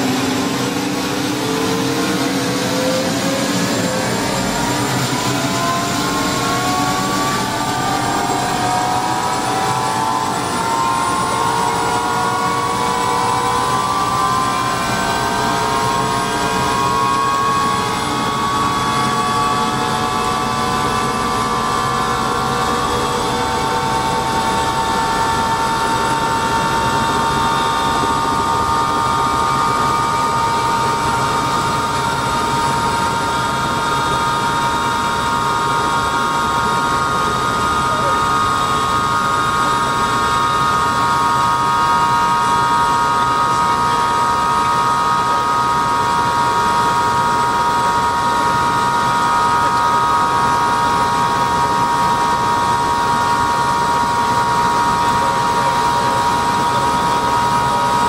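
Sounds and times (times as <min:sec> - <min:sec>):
rotor and engine rushing: 0:00.0 - 0:44.9
helicopter turbine whine: 0:00.0 - 0:58.0.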